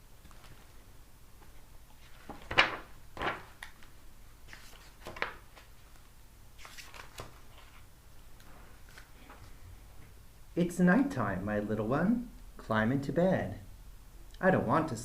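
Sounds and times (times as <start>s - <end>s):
book pages turning: 1.4s - 3.9s, 4.5s - 9.4s.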